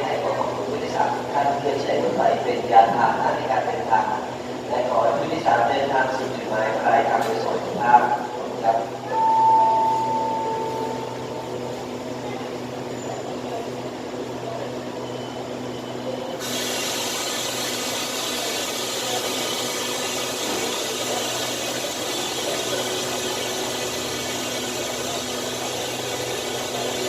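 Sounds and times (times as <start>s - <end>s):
diesel train engine humming: 0.0s - 27.0s
loud steady hiss: 16.4s - 27.0s.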